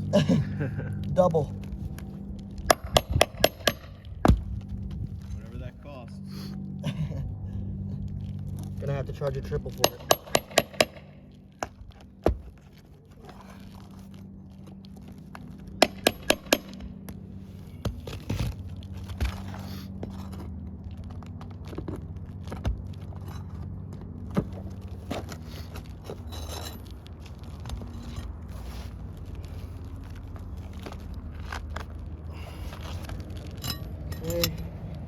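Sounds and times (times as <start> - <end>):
low hum: 0.0 - 35.0
pry tool scraping shingles: 2.0 - 4.2, 9.7 - 11.1, 15.8 - 16.9, 25.1 - 29.9, 32.4 - 34.9.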